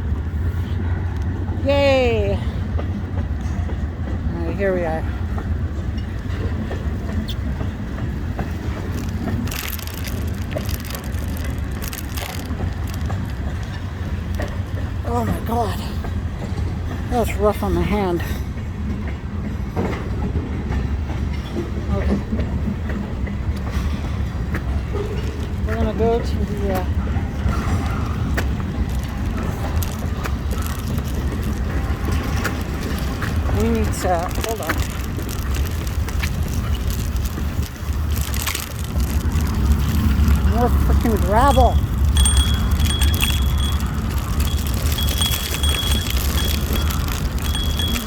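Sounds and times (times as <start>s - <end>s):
scooter rolling over gravel: 8.4s - 15.7s, 24.8s - 48.0s.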